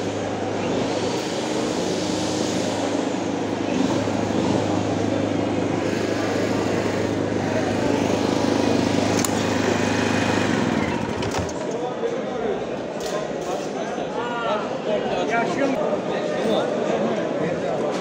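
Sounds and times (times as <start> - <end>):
steady engine drone: 0.0 - 11.6
busy market bustle: 0.0 - 18.0.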